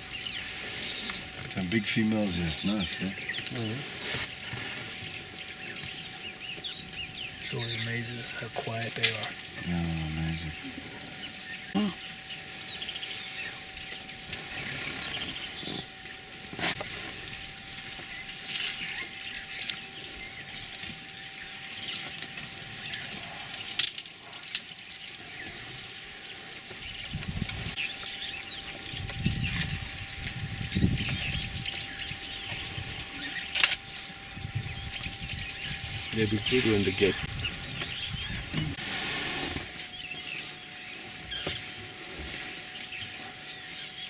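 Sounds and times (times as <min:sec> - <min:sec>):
elephants rumbling: 0:00.0 - 0:40.6
birds chirping: 0:00.0 - 0:44.0
vegetation snapping and cracking: 0:22.0 - 0:25.0.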